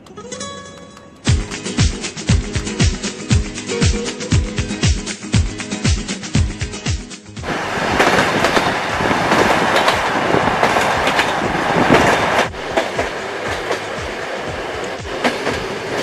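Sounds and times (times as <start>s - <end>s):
train wheels clicking on rails: 7.4s - 16.0s.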